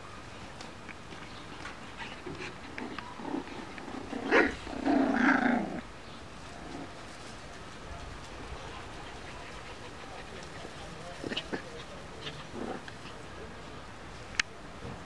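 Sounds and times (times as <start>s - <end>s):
puppies making small noises: 1.1s - 13.9s
puppy growling: 2.0s - 5.9s, 6.5s - 7.0s, 8.6s - 13.2s.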